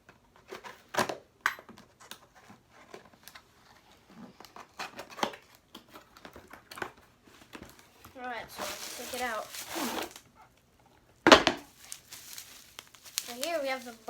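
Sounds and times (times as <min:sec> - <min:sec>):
crinkling plastic: 0:04.3 - 0:10.3, 0:11.3 - 0:14.0
cardboard rustling: 0:07.5 - 0:10.2, 0:11.3 - 0:14.0.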